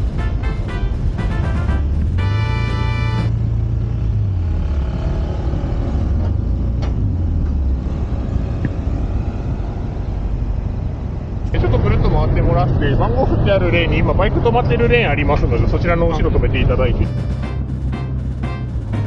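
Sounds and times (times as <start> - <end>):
background music: 0.0 - 3.3, 16.9 - 19.0
scooter engine running: 17.1 - 19.0.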